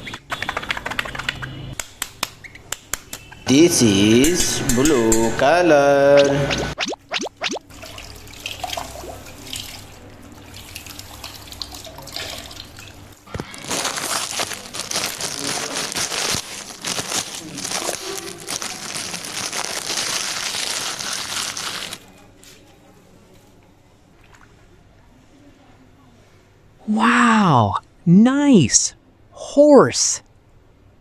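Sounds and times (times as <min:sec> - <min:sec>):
water splashing and pouring: 0:06.7 - 0:15.7
plastic crinkling: 0:13.3 - 0:22.2.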